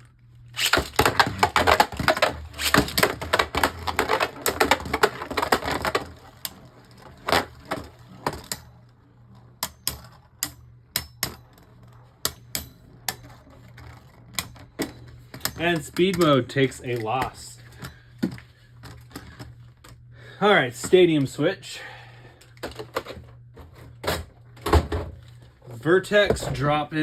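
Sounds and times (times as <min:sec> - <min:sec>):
spinning tops clashing: 0:00.6 - 0:06.1.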